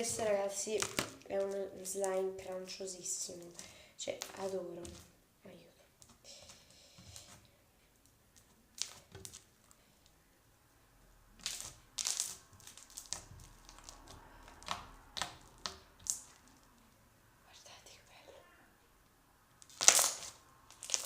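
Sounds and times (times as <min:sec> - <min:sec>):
crunchy slime squeezed by hand: 0:11.4 - 0:16.4, 0:19.6 - 0:21.0.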